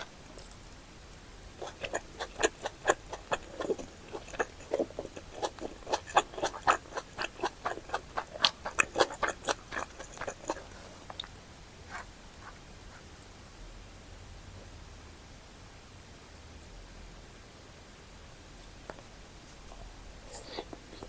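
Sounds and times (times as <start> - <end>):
close chewing mouth clicks: 1.6 - 11.3, 19.8 - 21.0.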